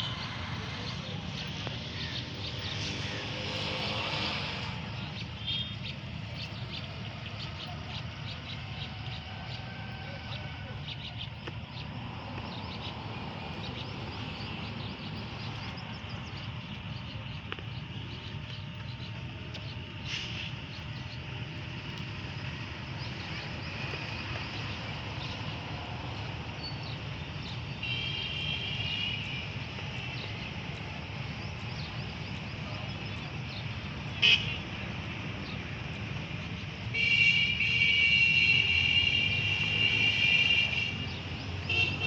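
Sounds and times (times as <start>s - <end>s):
low rumble of distant traffic: 0.0s - 42.0s.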